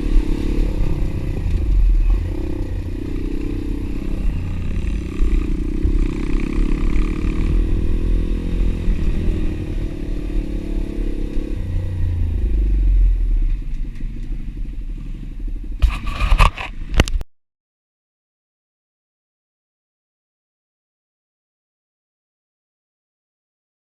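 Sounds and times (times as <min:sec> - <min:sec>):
motorbike engine running: 0:00.0 - 0:14.8.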